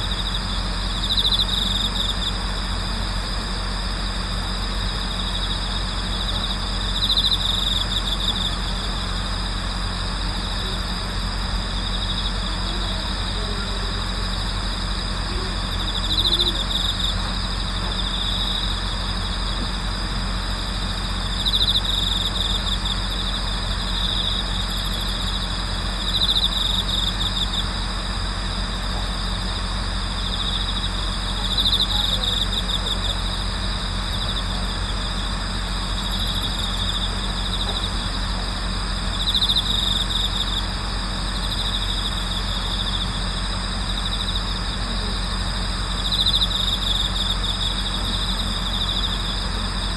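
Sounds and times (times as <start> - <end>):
crickets trilling: 0.0 - 49.9
louder cricket trill: 0.0 - 49.9
steady low hum: 0.0 - 49.9.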